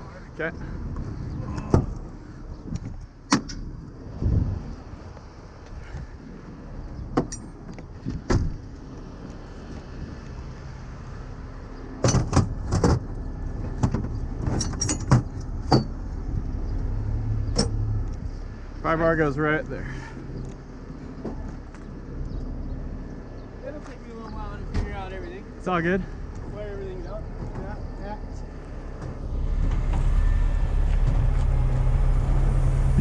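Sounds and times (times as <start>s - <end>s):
metal clanks of towing gear: 7.2s - 7.8s, 12.0s - 16.0s, 17.5s - 17.8s.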